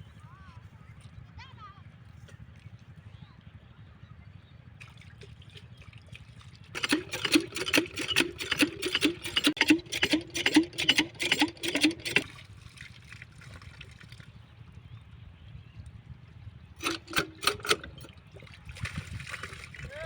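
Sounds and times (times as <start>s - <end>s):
low steady hum: 0.0s - 20.0s
water spurting from pump outlet: 4.8s - 14.6s, 16.8s - 20.0s.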